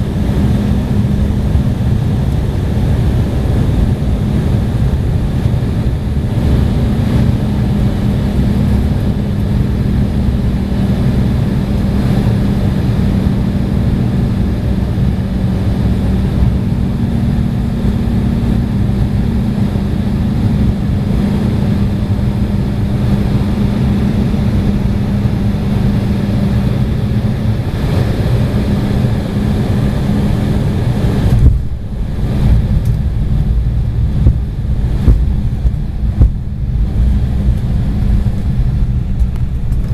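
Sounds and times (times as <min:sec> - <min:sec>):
airliner engines and airflow rush: 0:00.0 - 0:39.9
low cabin hum: 0:00.0 - 0:39.9
sudden bump: 0:31.3 - 0:37.5.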